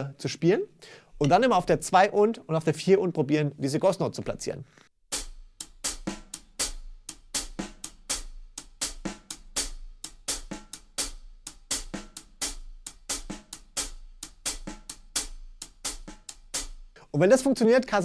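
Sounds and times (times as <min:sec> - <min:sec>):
hi-hat shuffle: 0:05.1 - 0:17.0
quiet snare ghost notes: 0:05.1 - 0:17.0.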